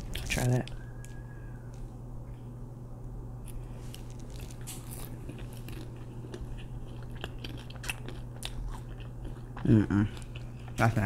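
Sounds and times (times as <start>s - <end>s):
steady low hum: 0.0s - 11.0s
wet chewing mouth sounds: 4.4s - 11.0s.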